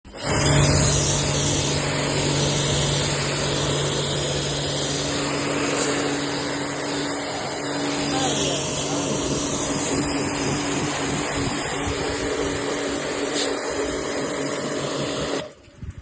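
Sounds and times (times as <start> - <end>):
electric motor humming: 0.1 - 15.6
loud even hiss: 0.1 - 15.6.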